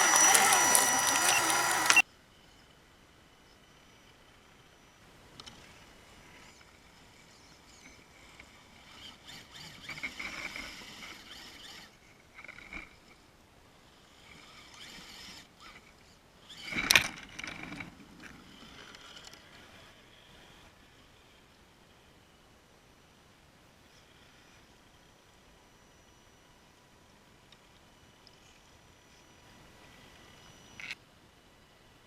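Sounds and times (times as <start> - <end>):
electric model motor whining: 0.0 - 2.0, 13.9 - 17.0.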